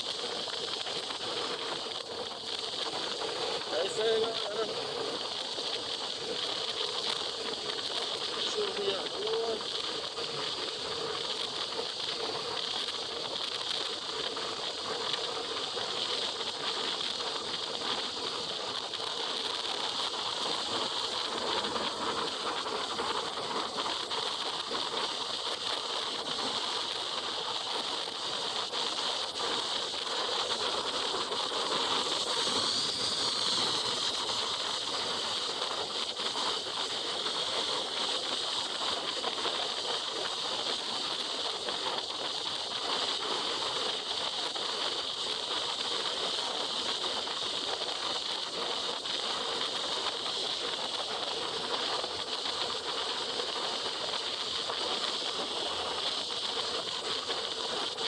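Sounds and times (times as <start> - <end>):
wet road noise: 0.0 - 42.8.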